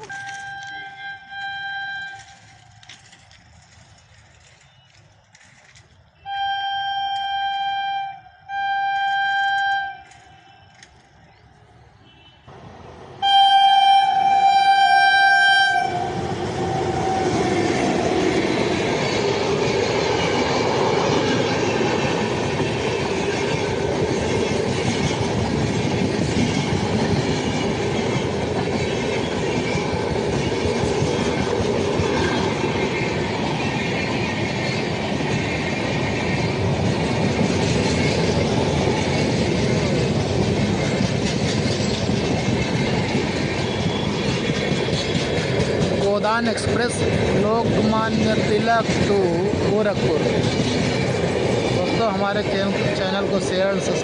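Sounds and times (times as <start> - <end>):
locomotive air horn: 0.0 - 2.4, 6.2 - 10.8, 12.0 - 12.6, 13.2 - 16.2
train rumble and wheel clatter: 0.0 - 54.0.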